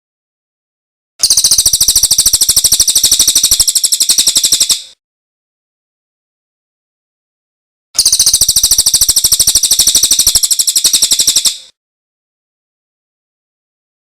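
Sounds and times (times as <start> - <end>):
songbird trilling: 1.2 - 5.0, 8.0 - 11.7.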